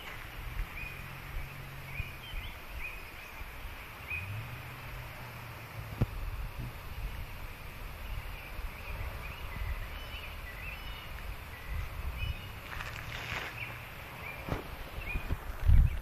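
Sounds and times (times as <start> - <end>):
birds chirping: 0.0 - 16.0
steady low rumble: 0.0 - 16.0
brief rustle: 12.7 - 13.8.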